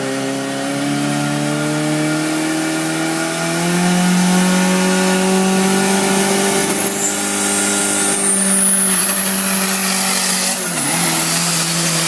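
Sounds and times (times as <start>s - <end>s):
turbocharged engine at high revs: 0.0s - 12.0s
thin high whine: 6.6s - 10.8s.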